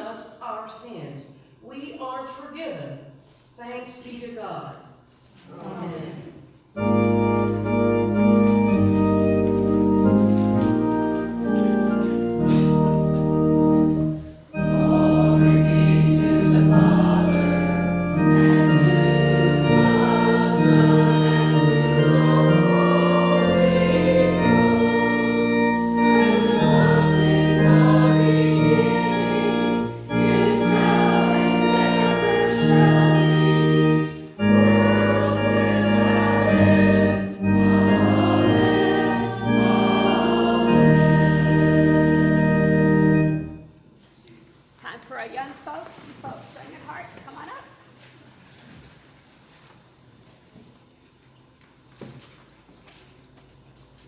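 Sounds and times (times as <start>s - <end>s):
organ chords: 6.5s - 44.0s
people singing a hymn: 7.1s - 43.4s.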